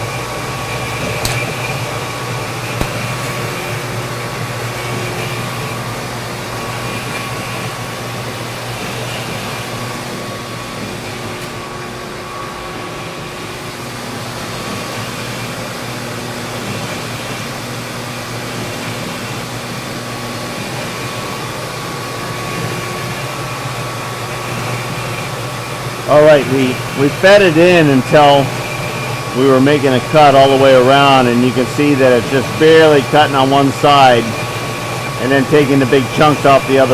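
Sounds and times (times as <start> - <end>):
cutter working fiberglass: 0.0 - 36.9
machine tool humming: 0.0 - 36.9.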